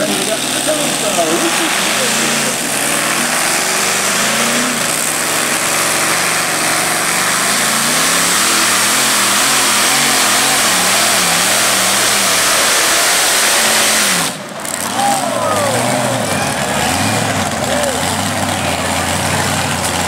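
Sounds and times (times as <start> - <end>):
pulling tractor engine roaring: 0.0 - 20.0.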